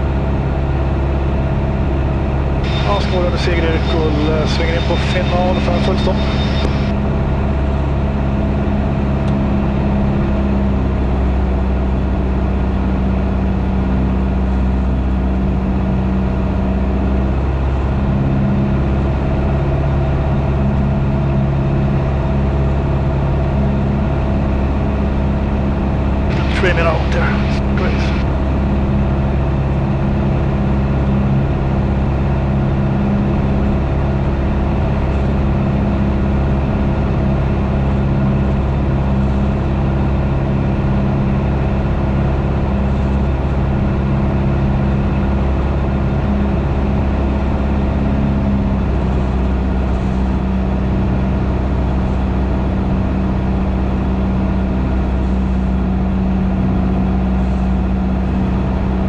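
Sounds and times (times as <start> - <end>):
aircraft piston engine running: 0.0 - 11.6, 17.4 - 52.2.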